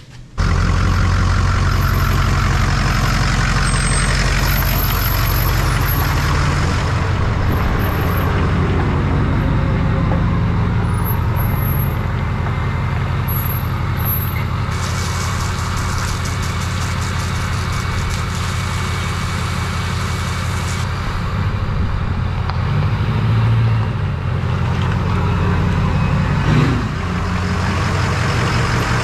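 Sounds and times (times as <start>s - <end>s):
engine humming: 0.0s - 29.0s
hose water spraying: 1.2s - 8.6s, 13.3s - 21.0s.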